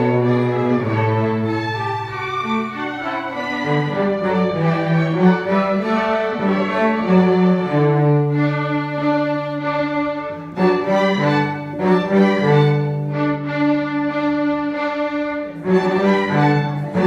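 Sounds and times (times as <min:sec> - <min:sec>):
bowed string ensemble playing: 0:00.0 - 0:17.0.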